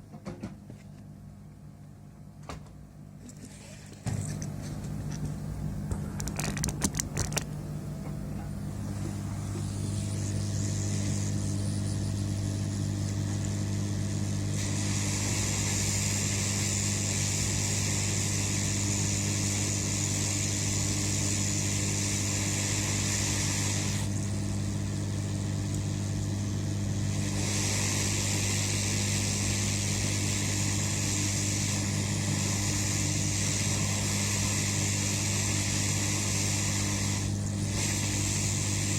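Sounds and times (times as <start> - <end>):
steady electric hum: 0.0 - 38.9
blowing air hiss: 9.2 - 38.9.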